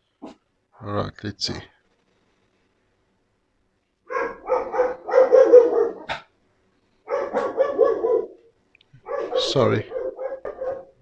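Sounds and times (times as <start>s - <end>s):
dogs barking: 4.1s - 6.4s, 7.0s - 11.0s.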